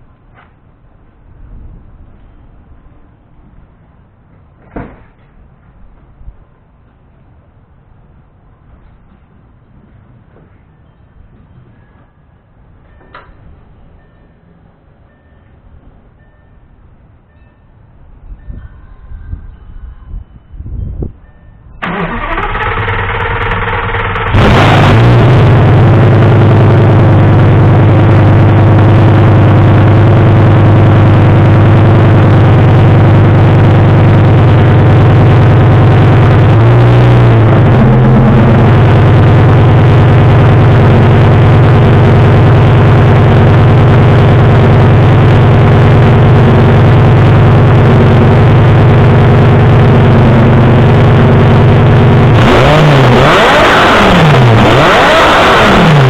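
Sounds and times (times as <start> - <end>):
car engine fast idle and revving: 21.8 - 56.0.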